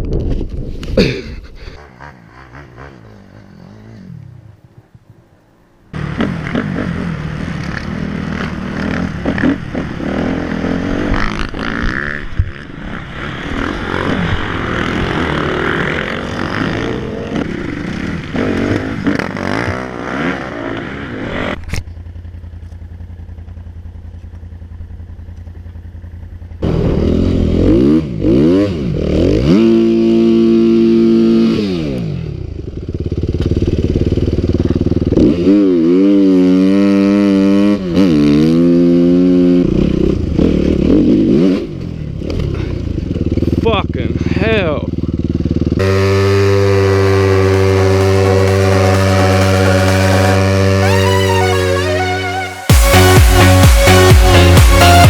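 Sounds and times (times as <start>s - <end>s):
dirt bike engines revving: 1.0s - 5.3s, 5.9s - 21.8s, 33.8s - 55.0s.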